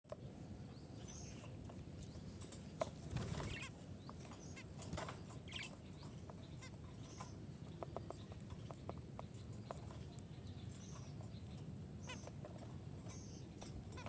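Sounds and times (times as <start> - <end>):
budgerigars chirping: 0.7 - 14.0.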